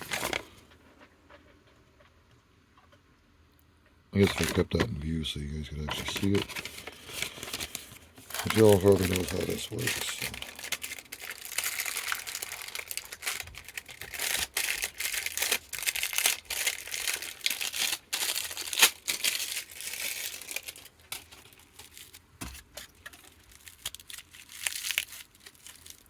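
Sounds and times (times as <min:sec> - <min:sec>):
packaging crinkling: 0:00.0 - 0:00.8, 0:04.2 - 0:26.0.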